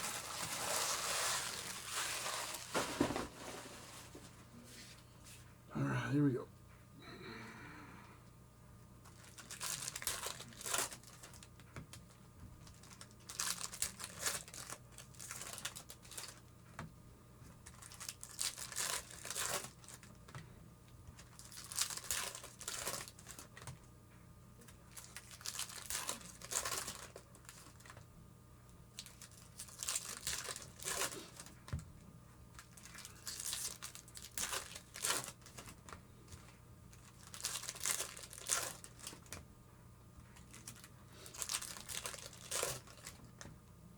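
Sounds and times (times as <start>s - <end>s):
wrappers torn and crinkled: 0.0s - 3.2s, 9.1s - 16.5s, 17.6s - 20.4s, 21.2s - 23.8s, 24.9s - 28.0s, 29.0s - 31.7s, 32.5s - 36.0s, 36.9s - 39.4s, 40.4s - 43.5s.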